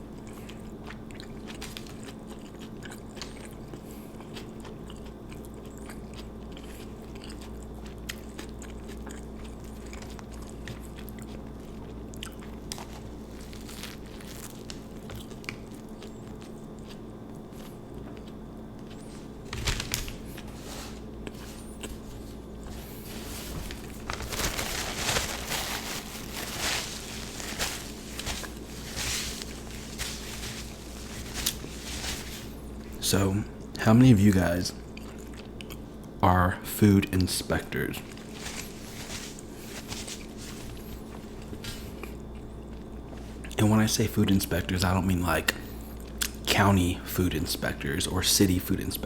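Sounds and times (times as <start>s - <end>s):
chewing and biting sandwich: 0.0s - 33.0s, 34.7s - 36.2s, 38.0s - 43.6s
loud crunching: 19.6s - 33.0s.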